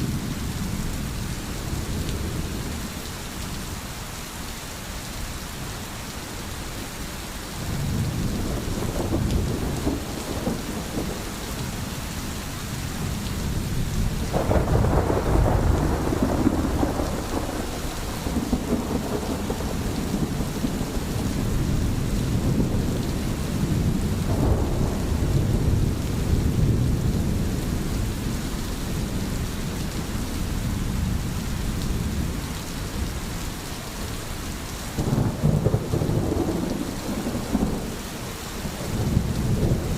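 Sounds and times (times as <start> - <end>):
steady rain: 0.0 - 39.9
low rolling thunder: 7.6 - 33.2, 35.0 - 39.9.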